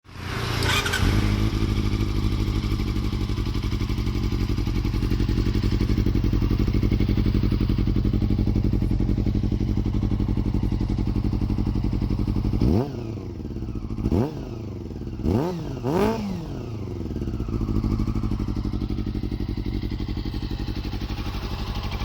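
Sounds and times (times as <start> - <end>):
motorcycle engine idling: 0.2 - 22.0.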